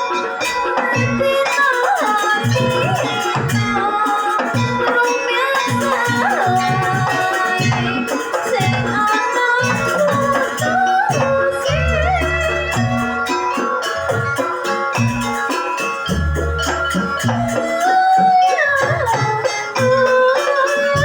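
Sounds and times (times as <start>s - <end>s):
bending melody line: 0.0s - 21.0s
drums beating steady pattern: 0.0s - 21.0s.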